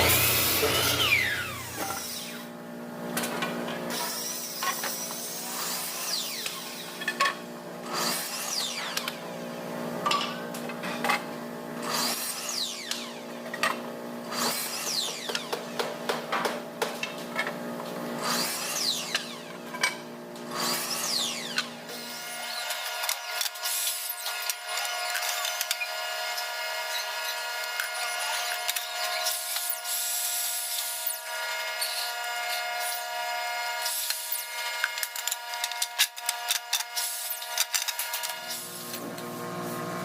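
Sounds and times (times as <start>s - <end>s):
machine hum: 0.0s - 3.5s.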